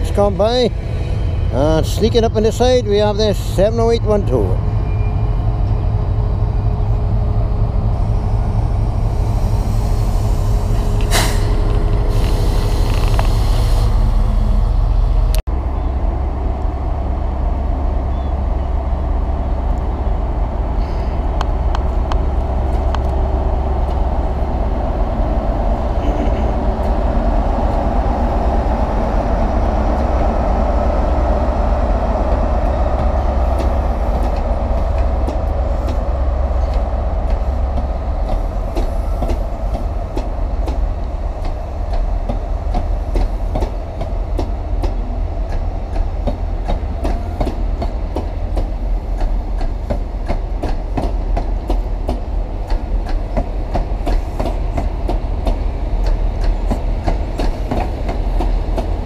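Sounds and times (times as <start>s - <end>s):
train wheels clicking over rail joints: 32.1s - 59.0s.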